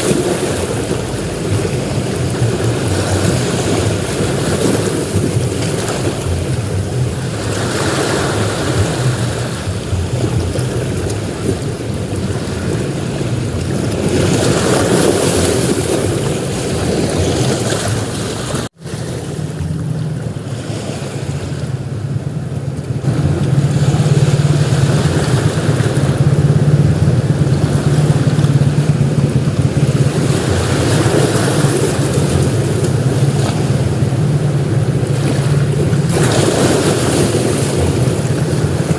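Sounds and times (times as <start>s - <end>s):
sea surf breaking on beach: 0.0s - 38.9s
steady low rumble: 18.9s - 38.9s.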